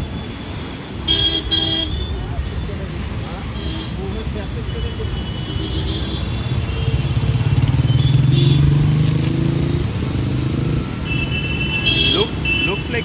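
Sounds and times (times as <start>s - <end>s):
vehicle engine passing by: 7.0s - 11.0s.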